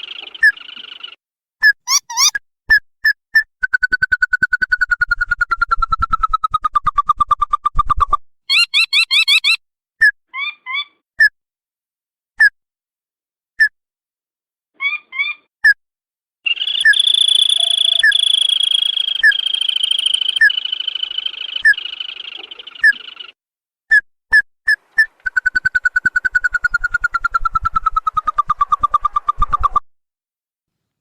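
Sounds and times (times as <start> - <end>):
crake calls: 1.9 - 2.3, 8.5 - 9.6, 16.5 - 23.2
long bird trill: 1.9 - 2.3, 8.5 - 9.6, 16.5 - 23.3.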